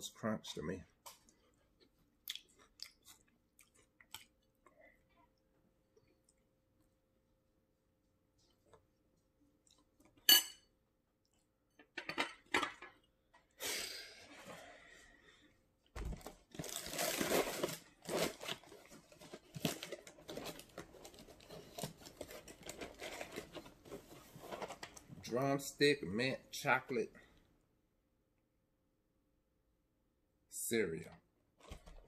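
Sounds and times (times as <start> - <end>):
spoon clinking in bowl: 10.3 - 10.7.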